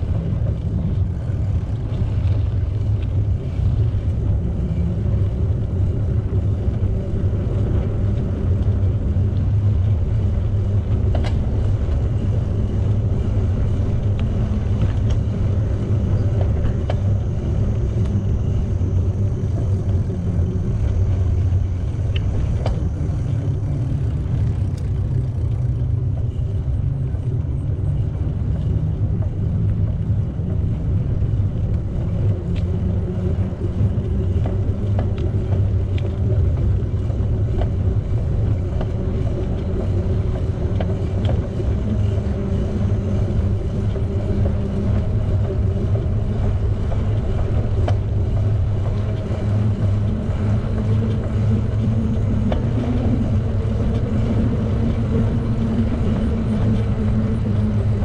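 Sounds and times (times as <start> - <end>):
wind rumble on microphone: 0.0 - 58.0
bicycle clicks: 22.0 - 26.6.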